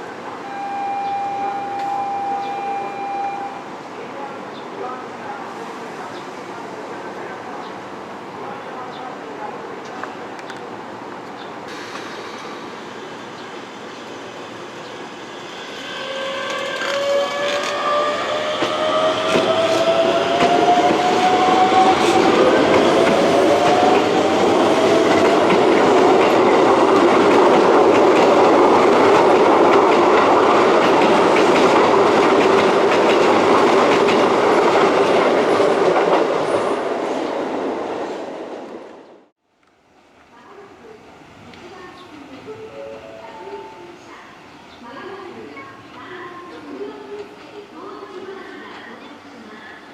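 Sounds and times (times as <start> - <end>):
electric train motors whining: 15.8 - 25.7.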